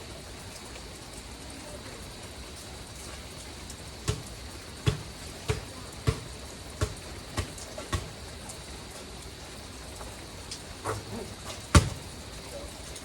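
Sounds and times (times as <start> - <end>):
rain hissing: 0.0 - 13.0
basketball bouncing: 4.0 - 8.2, 11.7 - 12.1.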